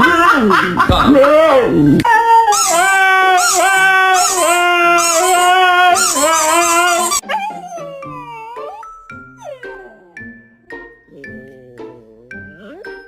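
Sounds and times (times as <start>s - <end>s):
dog howling: 2.0s - 10.4s.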